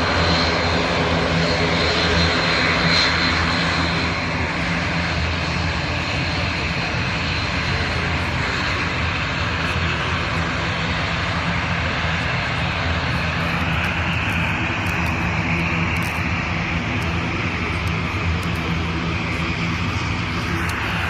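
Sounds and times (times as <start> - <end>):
airliner engines whining: 0.0 - 21.0.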